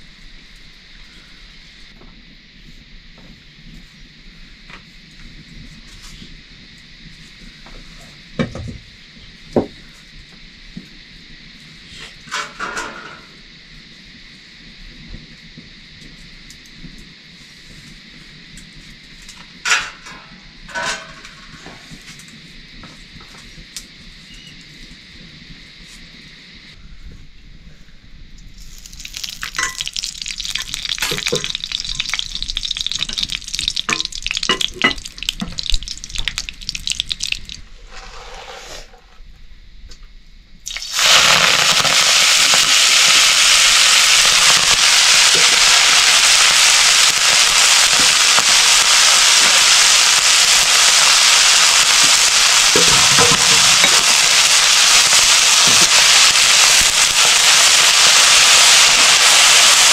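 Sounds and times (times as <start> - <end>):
loud steady sizzle: 0.0 - 59.9
potatoes frying in hot oil: 19.2 - 21.8, 28.6 - 38.4, 40.6 - 59.9
oil crackling: 28.6 - 37.6, 40.7 - 59.9.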